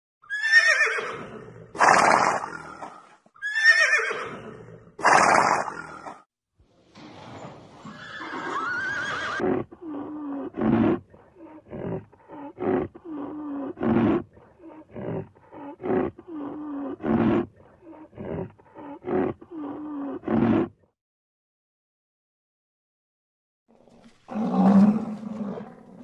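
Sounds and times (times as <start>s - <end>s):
horse whinny: 0.2s - 2.7s, 3.4s - 6.2s, 7.9s - 9.5s.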